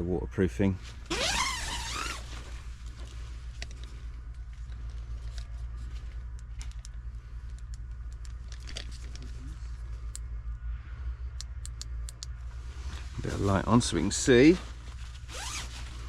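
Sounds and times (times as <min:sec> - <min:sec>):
steady low rumble: 0:00.0 - 0:16.0
tent zip pulled open: 0:01.0 - 0:02.7, 0:15.0 - 0:16.0.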